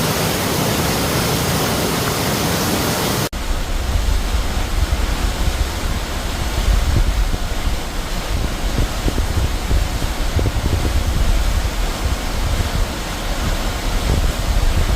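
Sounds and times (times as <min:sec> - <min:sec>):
stream rushing loudly: 0:00.0 - 0:14.9
deep unsteady rumble: 0:03.4 - 0:14.9.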